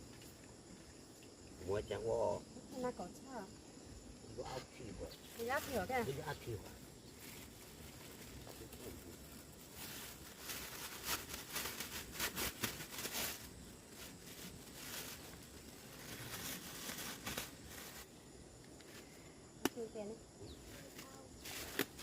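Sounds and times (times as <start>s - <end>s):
rustling and crinkling: 5.1s - 19.1s, 20.6s - 22.0s.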